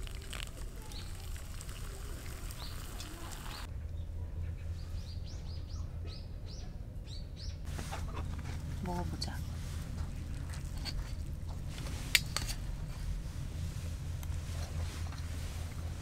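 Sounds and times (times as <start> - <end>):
small birds chirping: 0.0 - 3.7
steady low rumble: 0.1 - 16.0.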